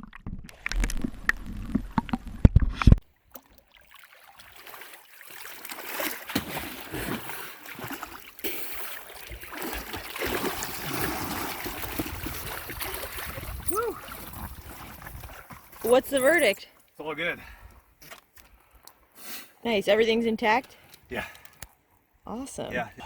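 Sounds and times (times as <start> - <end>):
water splashing with knocks: 3.2 - 17.0
rushing gurgling water: 3.8 - 15.5.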